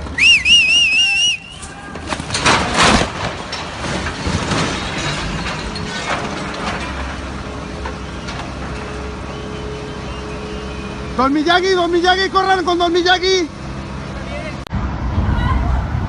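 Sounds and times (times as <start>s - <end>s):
engine hum: 0.0s - 16.0s
heavy machinery crash: 1.2s - 9.6s
cracking and clattering: 1.6s - 9.4s.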